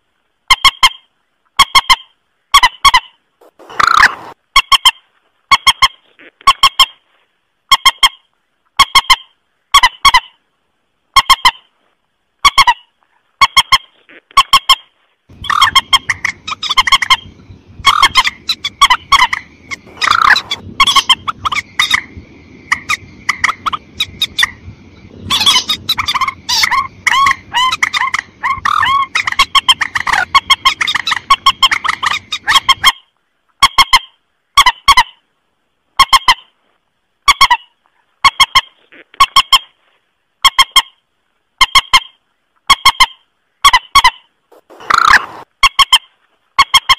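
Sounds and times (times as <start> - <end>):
background hiss: 0.0 - 46.6
waterbird calls: 1.6 - 6.0, 14.4 - 33.0, 44.0 - 45.5.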